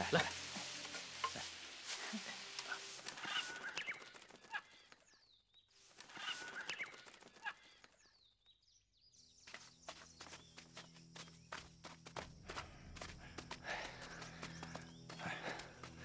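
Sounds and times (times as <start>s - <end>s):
footsteps on gravel: 9.4s - 16.0s.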